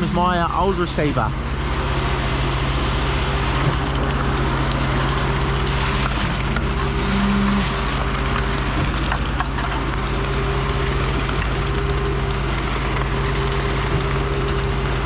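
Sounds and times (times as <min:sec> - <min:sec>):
diesel engine drone: 0:00.0 - 0:15.0
high electronic tone and beeps: 0:11.1 - 0:15.0.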